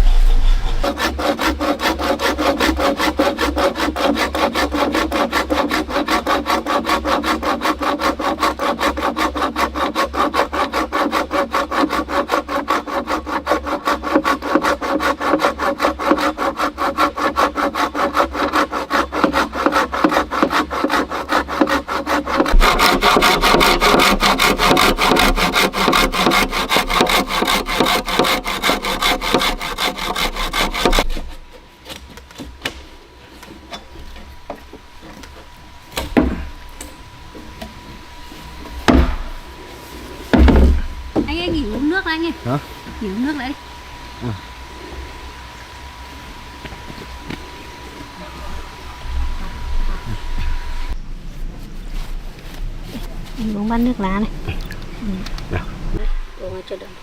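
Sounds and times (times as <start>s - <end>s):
hand saw cutting wood: 0.0s - 37.0s.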